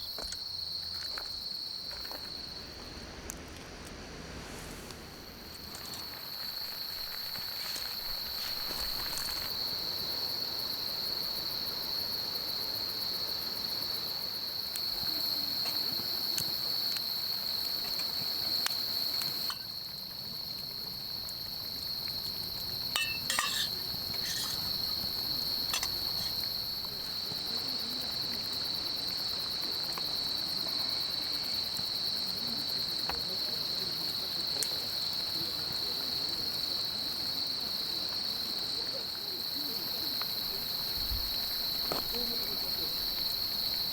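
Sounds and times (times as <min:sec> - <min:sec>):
faint crackling hiss: 0:00.0 - 0:32.6
crickets chirping: 0:00.0 - 0:43.9
light clinks: 0:22.9 - 0:24.8.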